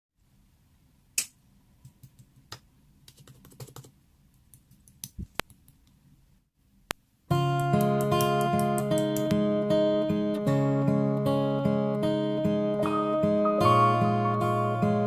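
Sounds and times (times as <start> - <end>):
faint clicks and taps: 1.2 - 6.0.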